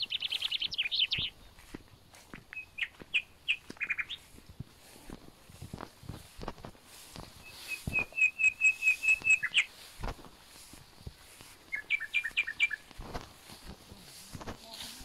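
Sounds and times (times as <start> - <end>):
bird singing whistled notes: 0.0 - 1.4, 2.5 - 4.2, 7.4 - 9.8, 11.7 - 12.9
footsteps through grass: 0.0 - 15.0.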